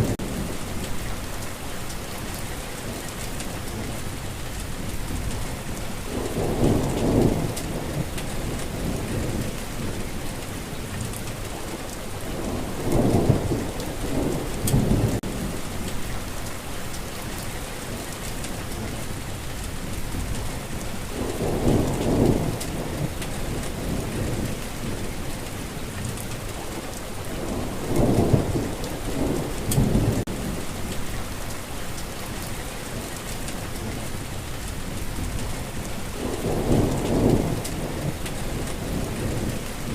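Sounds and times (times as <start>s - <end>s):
rainfall: 0.0s - 39.9s
distant thunder rolling: 4.9s - 16.4s, 20.0s - 31.5s, 33.2s - 39.9s.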